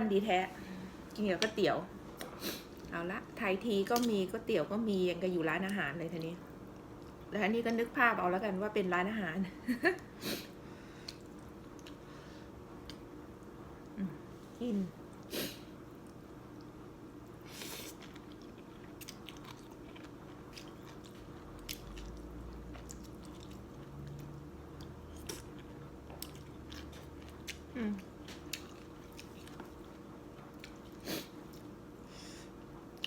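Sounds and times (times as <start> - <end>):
person chewing noodles: 11.0 - 12.1, 17.4 - 31.7.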